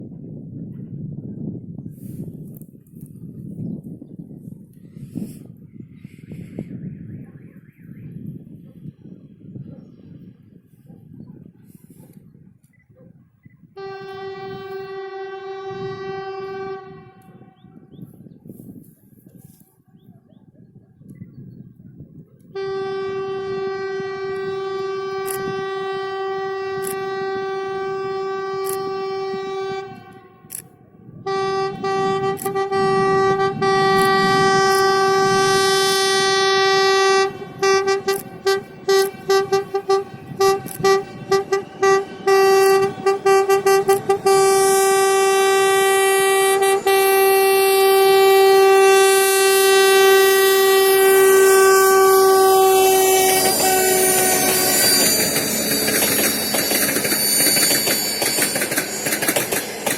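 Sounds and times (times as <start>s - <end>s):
locomotive horn blasts: 13.8s - 17.9s, 22.5s - 30.6s, 31.2s - 59.9s.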